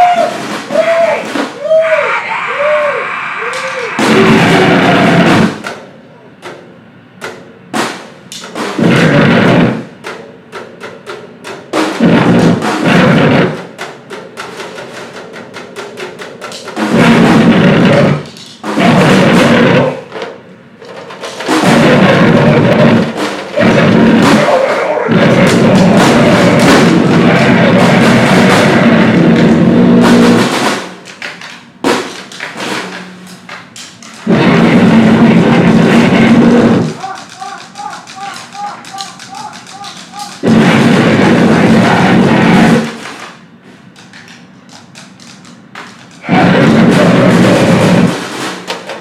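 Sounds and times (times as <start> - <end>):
rapid drum hits: 0.0 - 1.9, 3.6 - 5.8, 7.7 - 10.2, 11.6 - 43.8, 45.5 - 49.0
distorted noise: 0.0 - 5.7, 8.6 - 10.0, 11.8 - 13.8, 16.7 - 20.8, 21.4 - 31.1, 31.8 - 43.6, 46.2 - 48.7
harsh noise blasts: 0.0 - 6.0, 7.7 - 10.1, 11.7 - 14.1, 16.6 - 43.9, 45.5 - 48.9.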